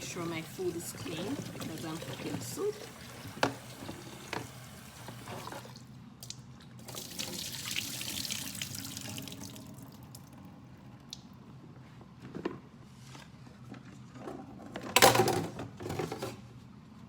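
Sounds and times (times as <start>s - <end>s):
tap water running: 0.0s - 5.9s, 6.8s - 10.4s.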